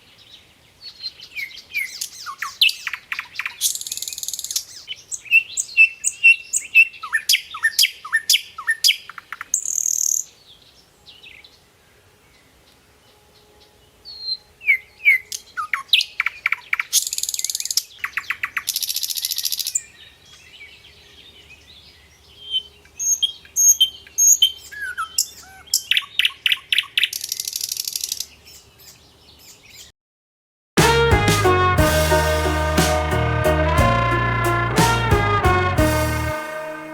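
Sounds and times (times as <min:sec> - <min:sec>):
music: 0:30.8 - 0:36.9.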